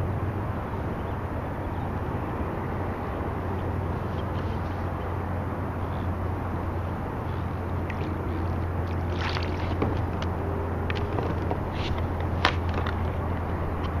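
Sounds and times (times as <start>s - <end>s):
steady low hum: 0.0s - 14.0s
water splashing: 6.7s - 13.3s.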